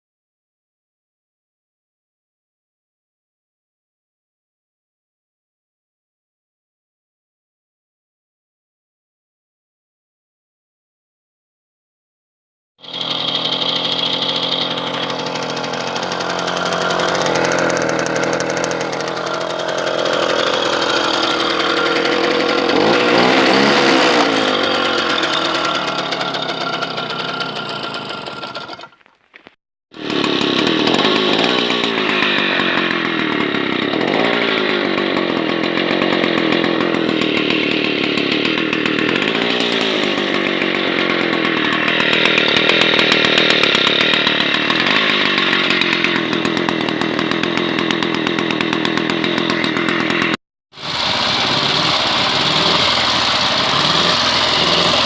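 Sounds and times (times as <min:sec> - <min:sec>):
second engine running steadily: 0:12.8 - 0:28.8, 0:42.6 - 0:55.0
small petrol engine revving: 0:12.8 - 0:55.0.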